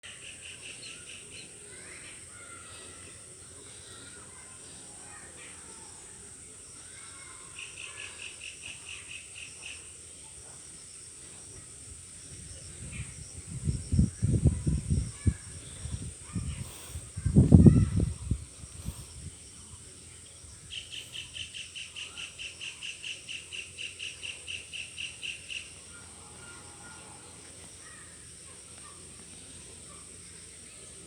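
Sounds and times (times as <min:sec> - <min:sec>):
birds calling: 0:00.1 - 0:06.0
high insect drone: 0:00.1 - 0:31.0.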